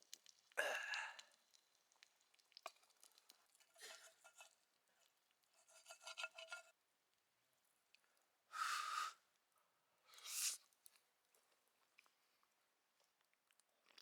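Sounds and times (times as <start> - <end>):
faint scraping: 5.6 - 6.7.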